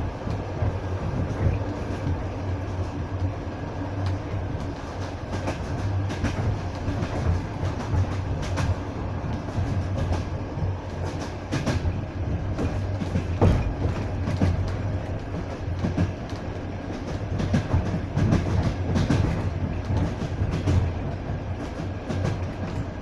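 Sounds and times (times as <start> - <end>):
train carriage rumble: 0.0 - 23.0
wheels knocking over rail joints: 12.6 - 14.8.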